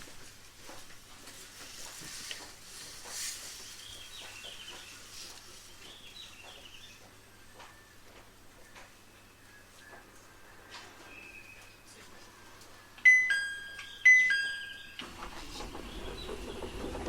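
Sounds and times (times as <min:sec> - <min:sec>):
faint high chirps: 0:13.0 - 0:15.0.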